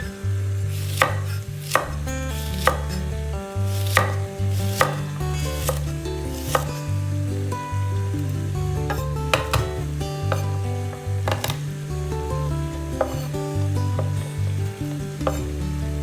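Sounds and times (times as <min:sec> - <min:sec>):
background music with bass line: 0:00.0 - 0:16.0
knife chopping on cutting board: 0:00.8 - 0:03.0, 0:03.7 - 0:06.8, 0:08.9 - 0:11.8, 0:13.0 - 0:13.3, 0:13.9 - 0:14.2, 0:15.2 - 0:15.5.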